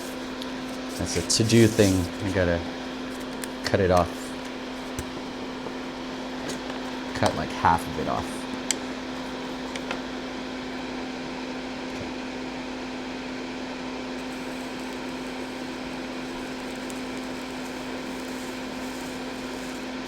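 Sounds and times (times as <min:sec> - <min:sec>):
motor humming: 0:14.2 - 0:20.0.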